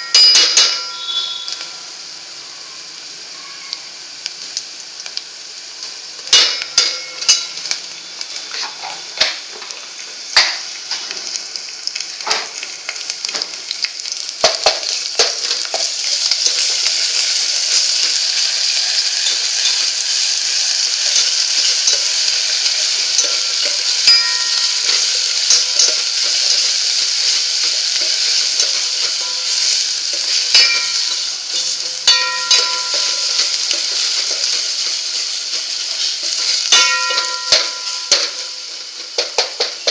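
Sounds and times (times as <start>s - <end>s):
oil sizzling in a pan: 0.0s - 39.9s
spoon knocking against pan: 30.5s - 31.2s, 32.0s - 34.2s, 36.7s - 38.5s.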